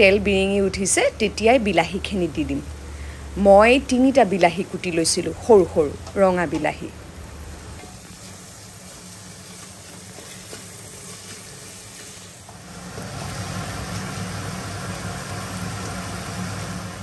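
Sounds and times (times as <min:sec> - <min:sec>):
tomatoes sizzling in hot oil: 0:03.5 - 0:17.0
spatula stirring in pot: 0:07.8 - 0:12.4.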